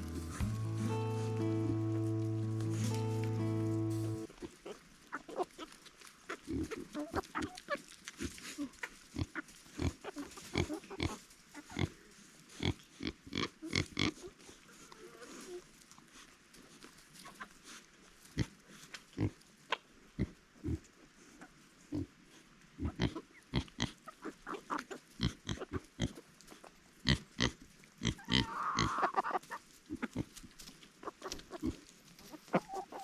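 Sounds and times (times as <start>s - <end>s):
brief high-pitched sound: 0.0s - 4.3s
pigs grunting: 6.3s - 15.6s, 22.8s - 26.2s, 27.0s - 30.4s, 31.2s - 33.0s.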